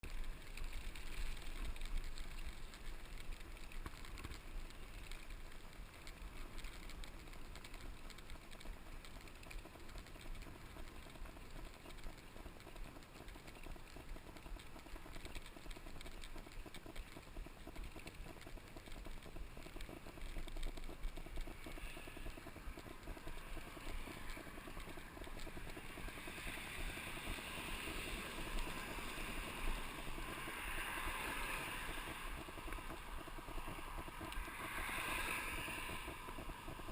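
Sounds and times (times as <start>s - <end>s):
bike clicks and rattles: 0.0s - 36.9s
bike tyres on dirt trail: 0.0s - 36.9s
rushing hiss: 33.6s - 36.9s.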